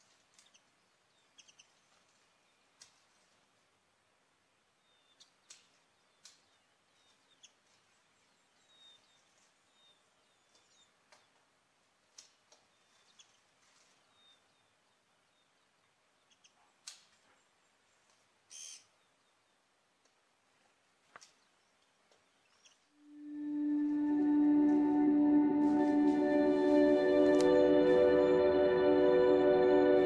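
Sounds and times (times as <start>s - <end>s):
faint high bird chirps: 18.5s - 19.4s.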